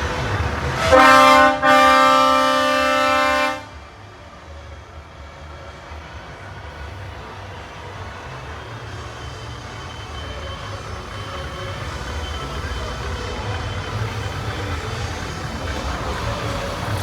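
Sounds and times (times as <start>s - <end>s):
truck engines idling: 0.0s - 17.0s
truck air horn blasts: 0.8s - 3.8s.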